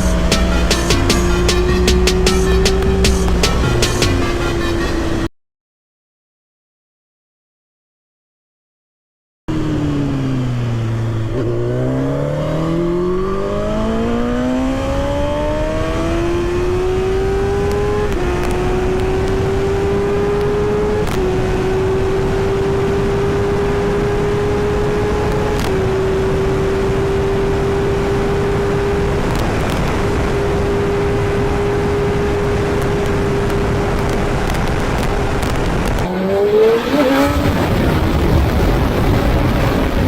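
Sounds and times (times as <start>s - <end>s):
motorcycle engine accelerating: 0.0s - 5.3s, 9.5s - 40.0s
wind noise: 12.7s - 40.0s.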